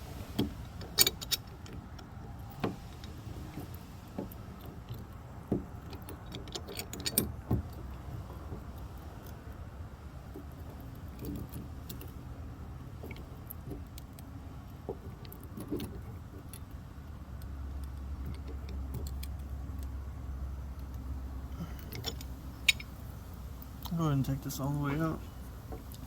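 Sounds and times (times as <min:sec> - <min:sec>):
low steady rumble: 0:00.0 - 0:26.0
metallic clicks of tools: 0:21.7 - 0:23.0.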